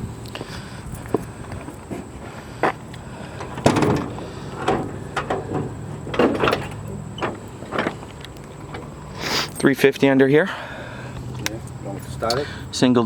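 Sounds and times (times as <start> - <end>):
metallic latch clicks and clunks: 3.4 - 8.9.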